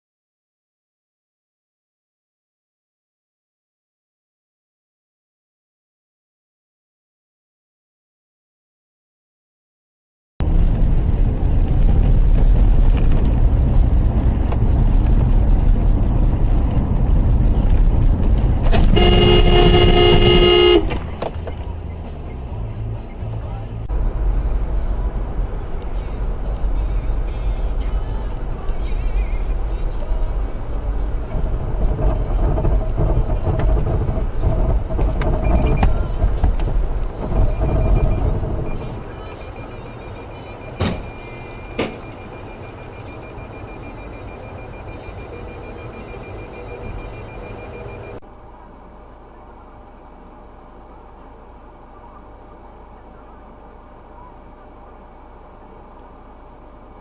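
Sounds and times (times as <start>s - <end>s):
road and engine rumble: 10.4s - 57.0s
car horn: 18.6s - 23.8s
high short beep: 18.7s - 21.2s.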